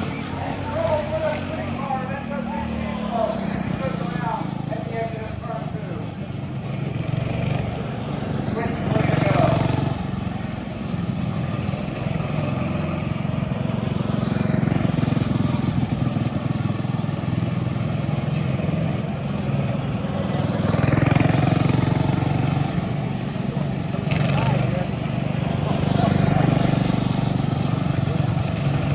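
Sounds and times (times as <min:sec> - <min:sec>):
go-kart engine running: 0:00.0 - 0:28.9.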